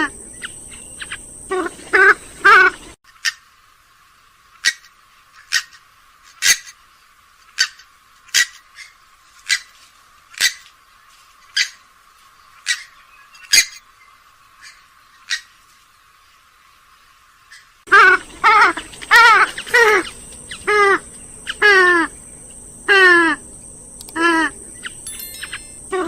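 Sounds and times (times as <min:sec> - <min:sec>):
bird giving sharp calls: 0:17.5 - 0:23.4.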